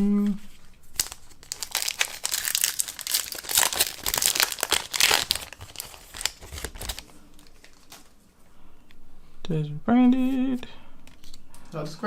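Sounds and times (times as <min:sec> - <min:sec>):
foil wrapper crinkling: 0:00.9 - 0:08.1.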